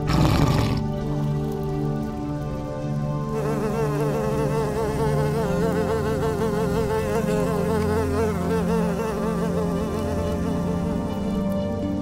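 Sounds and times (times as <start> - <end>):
wasps buzzing: 3.1 - 11.6.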